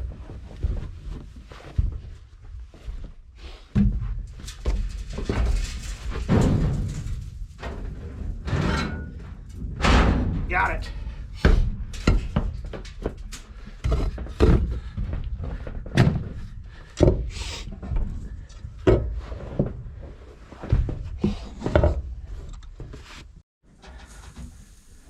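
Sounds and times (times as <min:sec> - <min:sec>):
heavy metal thuds and clunks: 0:03.7 - 0:22.9.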